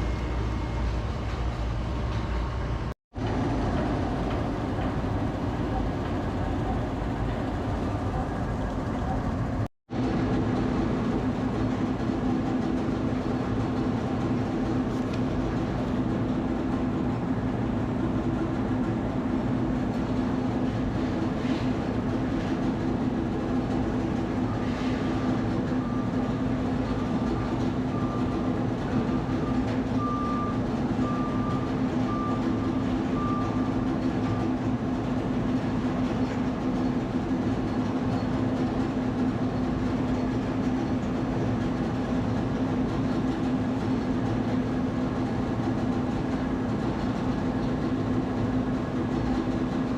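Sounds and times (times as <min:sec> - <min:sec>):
moving vehicle rumble: 0:00.0 - 0:09.7.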